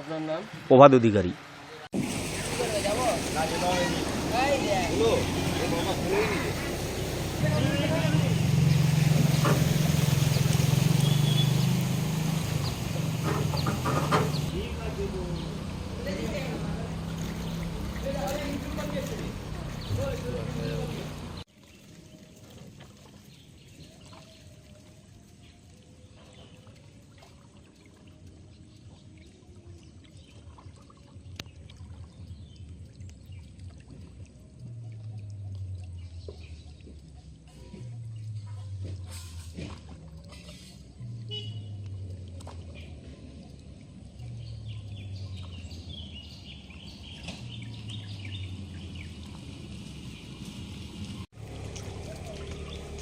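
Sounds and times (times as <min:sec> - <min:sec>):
water drips and splashes: 0:00.0 - 0:53.0
water trickling and lapping: 0:00.0 - 0:53.0
small birds chirping: 0:02.4 - 0:22.4, 0:40.2 - 0:50.5.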